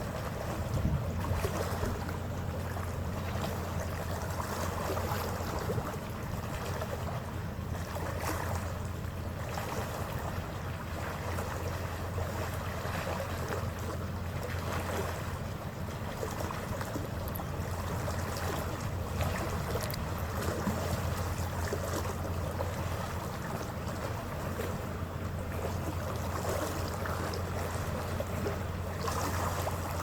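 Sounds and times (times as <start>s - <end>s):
wind on microphone: 0.0s - 2.4s
water rushing along hull: 0.0s - 30.0s.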